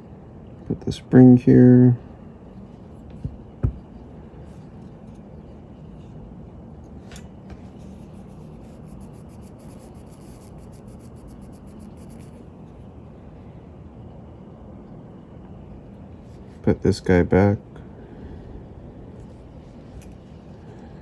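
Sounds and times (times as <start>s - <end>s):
steady low hum: 0.0s - 21.0s
fine ticks of tweezers: 8.6s - 12.4s.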